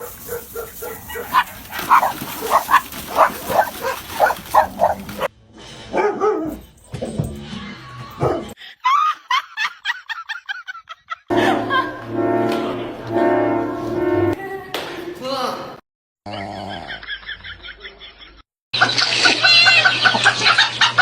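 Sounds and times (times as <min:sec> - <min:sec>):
dog barking and yipping: 0:00.0 - 0:05.3, 0:05.9 - 0:06.6
music: 0:11.3 - 0:14.4.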